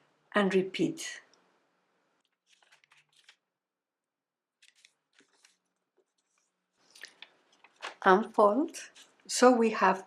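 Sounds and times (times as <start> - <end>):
paper rustling and crinkling: 2.2 - 3.5, 4.5 - 9.3.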